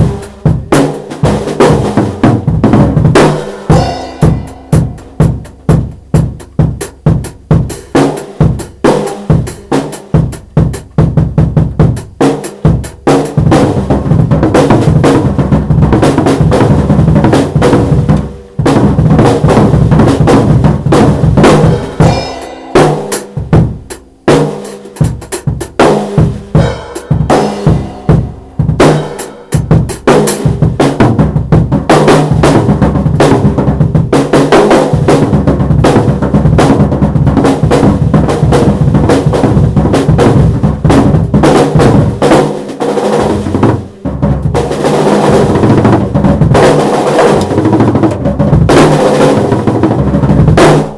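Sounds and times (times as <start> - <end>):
bass drum hits: 0.0 - 7.7, 13.4 - 24.3, 26.4 - 29.9, 43.2 - 46.7
rapid drum fills and rolls: 0.0 - 50.9
snare drum hits: 3.2 - 5.7, 21.4 - 25.1, 25.8 - 30.2, 46.5 - 49.5.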